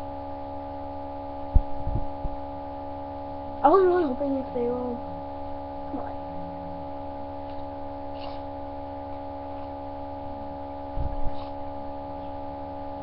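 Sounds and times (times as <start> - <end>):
steady hum of held tones: 0.0 - 13.0.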